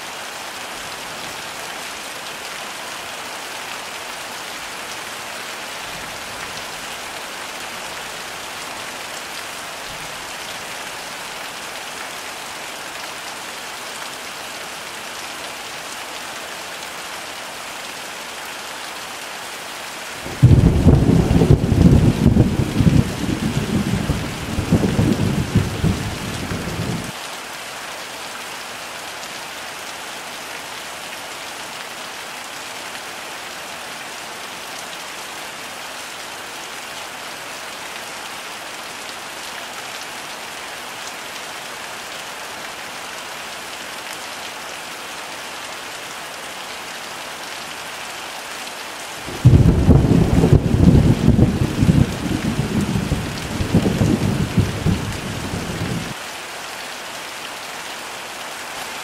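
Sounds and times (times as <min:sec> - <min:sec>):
heavy rain falling: 0:00.0 - 0:59.0
thunder rumbling: 0:20.3 - 0:27.1, 0:49.3 - 0:56.2.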